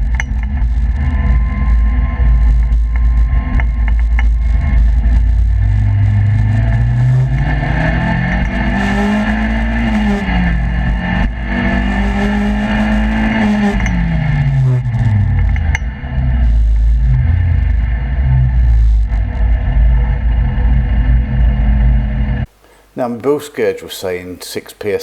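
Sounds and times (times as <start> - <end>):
car engine revving: 0.0 - 22.5
road and wind noise: 0.0 - 22.5.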